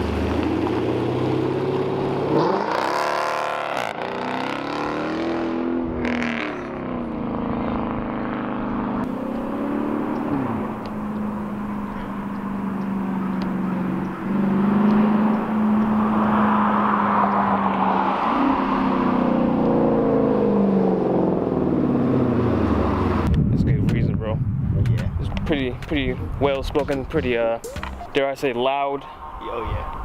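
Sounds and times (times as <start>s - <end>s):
car engine revving and idling: 0.0s - 23.8s.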